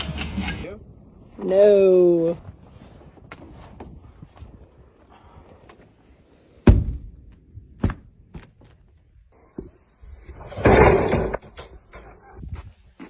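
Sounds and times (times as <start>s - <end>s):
loud thump: 6.6s - 7.1s.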